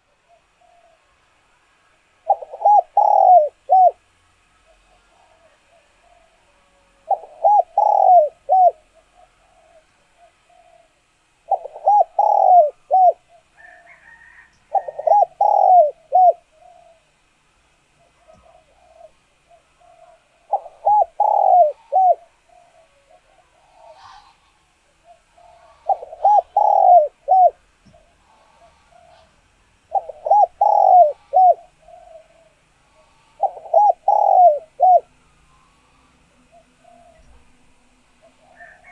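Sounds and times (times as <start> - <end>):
dove cooing: 0.0 - 1.2, 2.1 - 17.3, 17.9 - 38.9
small birds chirping: 2.3 - 4.0, 7.1 - 13.8, 14.7 - 17.1, 17.9 - 24.4, 25.0 - 37.5.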